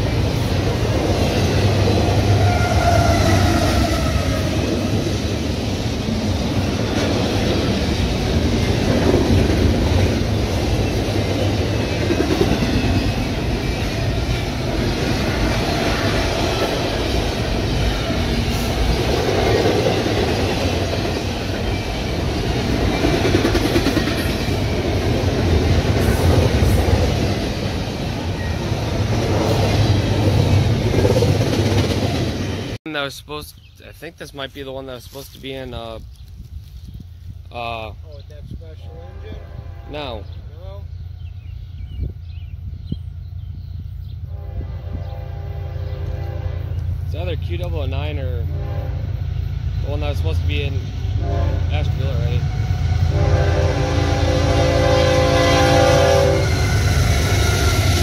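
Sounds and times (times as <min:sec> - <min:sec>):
train wheels rumbling on rails: 0:00.0 - 0:32.8, 0:34.1 - 0:58.0.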